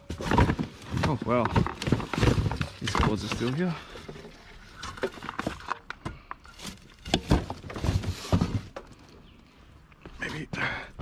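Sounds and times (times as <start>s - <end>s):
junk knocking and thudding: 0.0s - 4.2s, 7.1s - 8.9s.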